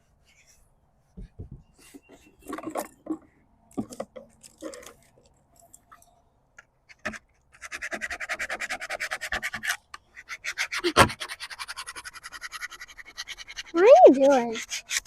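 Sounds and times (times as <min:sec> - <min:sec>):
light handling knocks: 0:01.2 - 0:01.8
tool scratching over paper stencil: 0:07.6 - 0:15.0.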